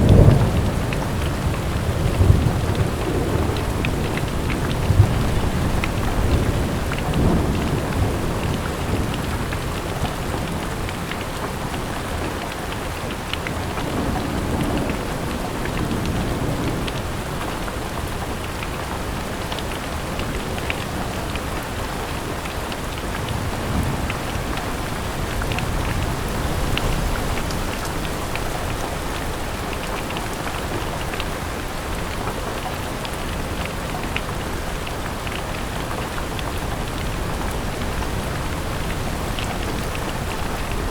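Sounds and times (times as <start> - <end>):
rolling thunder: 0.0 - 10.9
rain on a window: 0.0 - 40.9.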